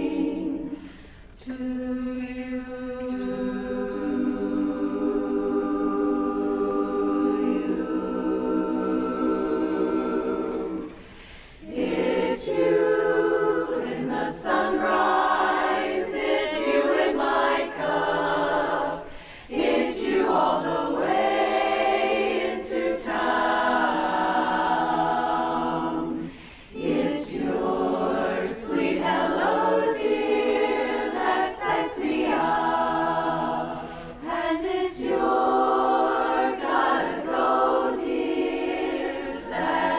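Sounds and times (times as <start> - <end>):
women's chorus singing a cappella: 0.0 - 39.9.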